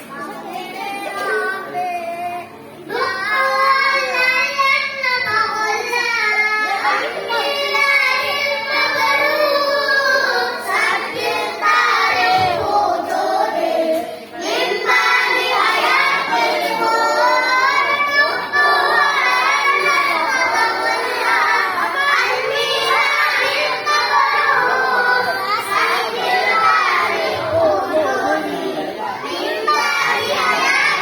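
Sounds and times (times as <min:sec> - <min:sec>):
child singing: 0:00.0 - 0:31.0.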